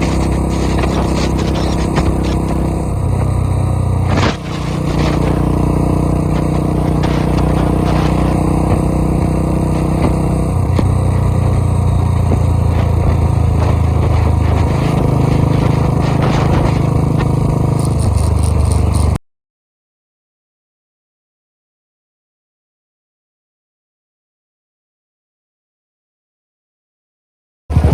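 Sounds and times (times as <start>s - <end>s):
tractor engine running hard: 0.0s - 19.2s.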